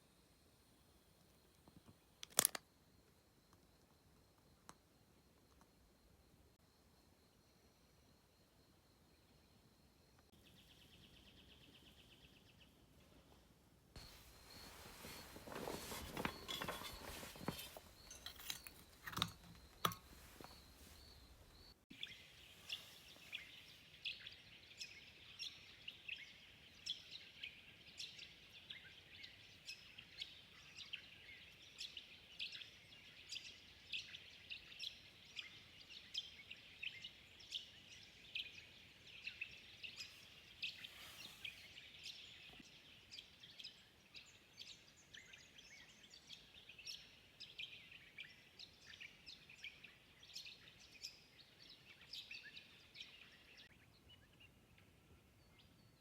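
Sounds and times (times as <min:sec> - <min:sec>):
birds chirping: 0:14.0 - 0:56.0.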